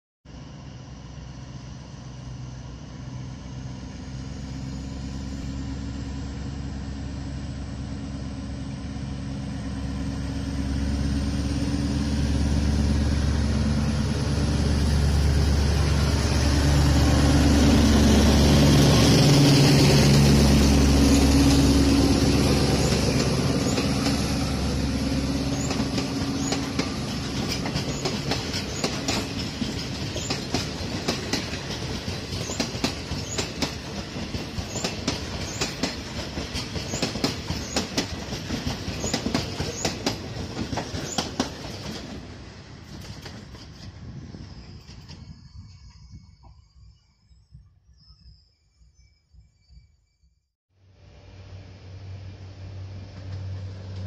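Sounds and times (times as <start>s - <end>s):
diesel locomotive engine drone: 0.3s - 50.2s, 50.8s - 54.0s
train wheels clicking over rail joints: 22.3s - 46.6s.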